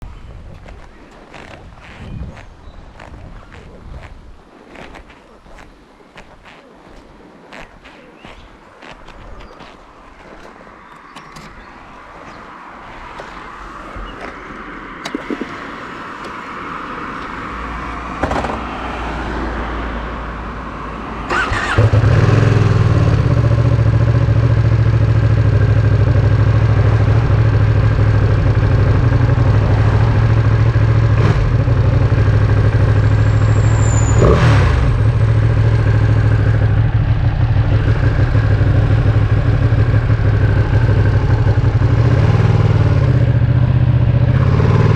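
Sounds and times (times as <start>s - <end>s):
starter cranking engine: 21.3s - 22.2s
motorcycle engine idling: 21.3s - 34.3s, 34.9s - 44.9s.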